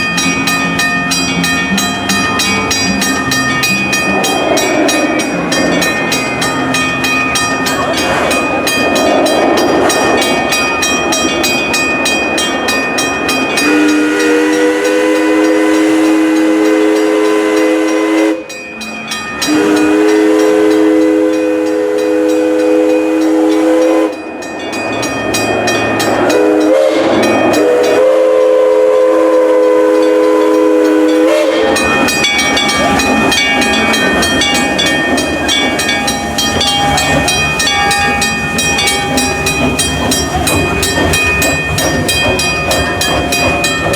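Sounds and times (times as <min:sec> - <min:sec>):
moving train running noise: 0:00.0 - 0:43.9
train wheels clickety-clack: 0:00.0 - 0:43.9
steam locomotive whistle blasts: 0:13.6 - 0:18.6, 0:19.4 - 0:24.3, 0:26.2 - 0:33.0.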